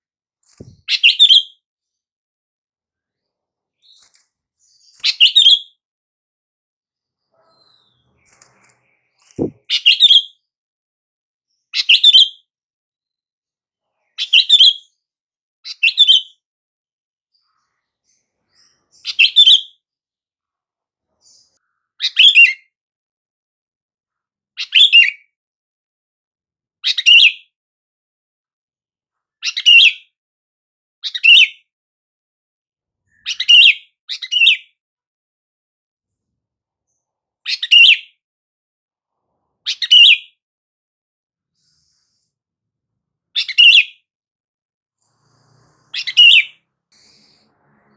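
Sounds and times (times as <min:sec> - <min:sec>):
bulbul singing: 0:09.2 - 0:10.0.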